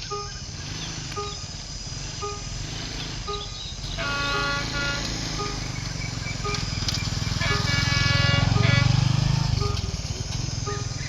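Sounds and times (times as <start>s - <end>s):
locomotive engine rumbling: 0.0s - 11.0s
train horn: 3.3s - 5.8s, 6.4s - 11.0s.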